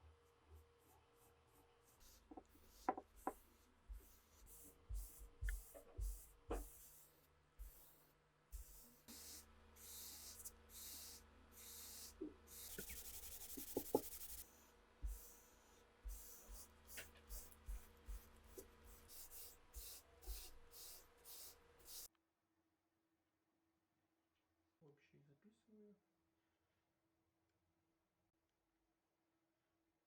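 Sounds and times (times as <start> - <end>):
steady sanding hiss: 8.6 - 22.1
scratchy sanding strokes: 11.8 - 14.5, 15.1 - 22.1.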